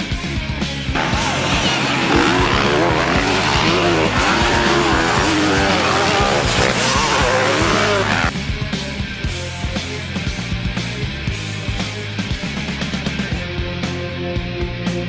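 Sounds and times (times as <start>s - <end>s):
rock music: 0.0s - 15.0s
motocross bike engines revving: 0.9s - 8.3s.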